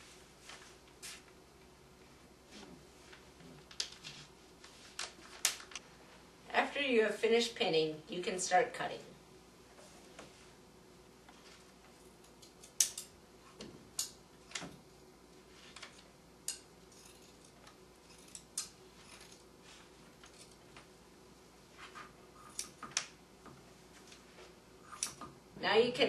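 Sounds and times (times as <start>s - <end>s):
scissors snipping fabric: 22.4s - 22.8s.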